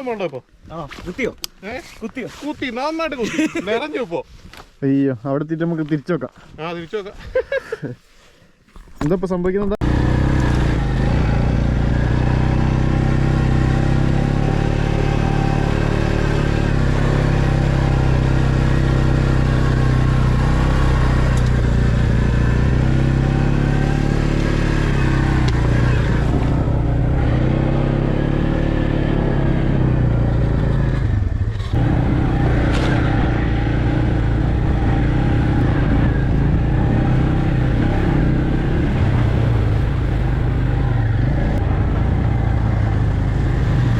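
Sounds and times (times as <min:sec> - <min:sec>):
off-road vehicle engine revving: 0:09.8 - 0:43.9.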